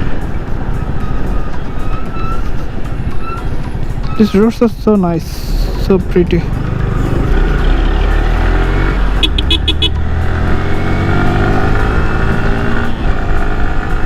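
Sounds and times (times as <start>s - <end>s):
motorcycle engine accelerating: 5.8s - 14.0s.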